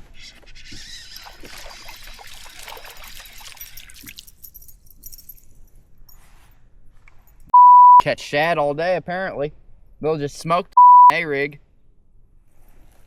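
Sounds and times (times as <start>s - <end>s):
water splashing and trickling: 0.8s - 4.8s.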